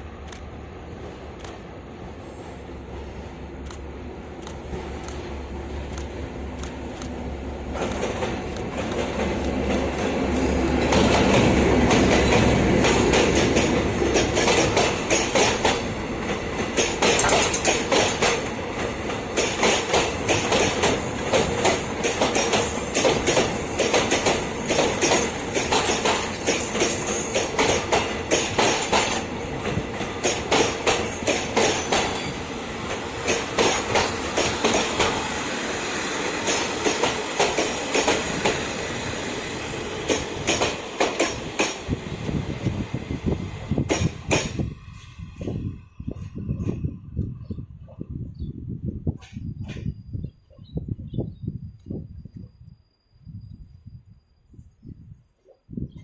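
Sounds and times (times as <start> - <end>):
train wheels clacking on rails: 3.6 - 46.9.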